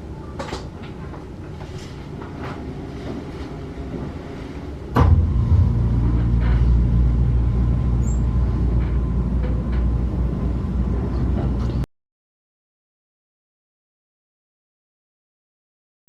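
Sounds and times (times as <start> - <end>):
train wheels on rail: 0.4 - 11.8
loud steady low rumble: 4.7 - 11.9
sharp knock: 5.0 - 6.7.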